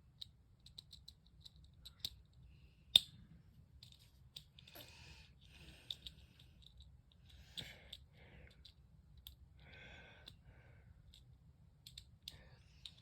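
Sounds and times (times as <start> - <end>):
soft breathy hiss: 4.6 - 8.8.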